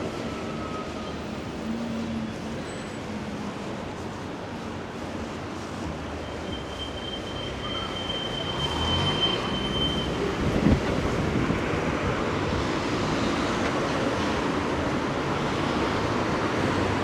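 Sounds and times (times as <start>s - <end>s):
heavy traffic rumbling: 0.0s - 17.0s
thin high squeal: 6.2s - 10.2s.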